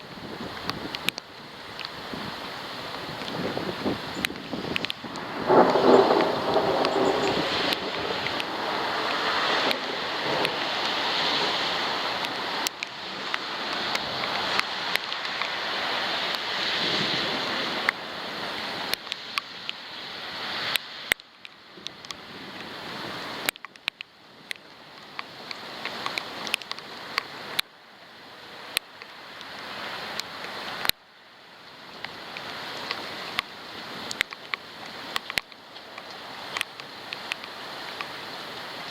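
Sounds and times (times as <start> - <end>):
storm wind: 0.0 - 21.1
raindrops ticking on camera housing: 0.0 - 38.9.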